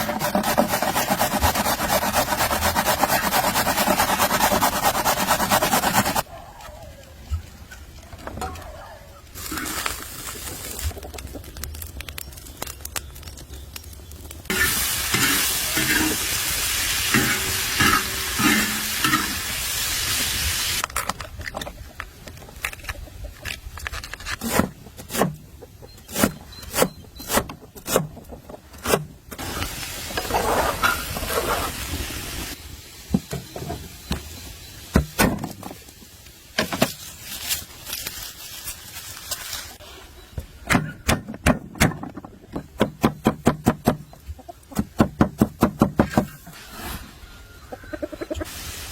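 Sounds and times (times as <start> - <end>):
food sizzling in a frying pan: 14.5 - 20.8, 48.5 - 48.9.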